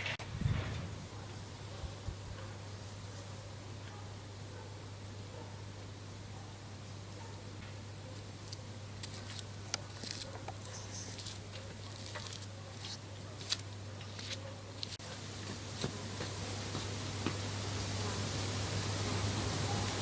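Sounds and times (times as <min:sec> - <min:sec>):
soft wind hiss: 0:00.0 - 0:07.3
small ticks and patters: 0:08.1 - 0:17.4.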